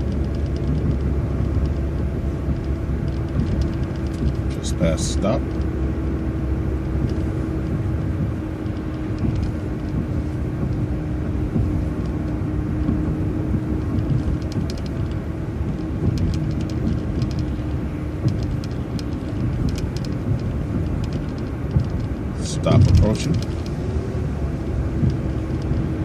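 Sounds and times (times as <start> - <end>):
bus engine and road rumble: 0.0 - 26.0
light rattling: 0.0 - 26.0.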